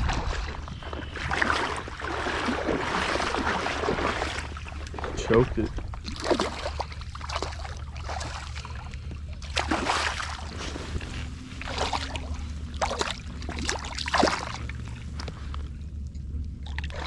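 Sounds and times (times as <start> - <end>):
water splashing and sloshing: 0.0 - 17.0
wind rumble on microphone: 0.0 - 17.0.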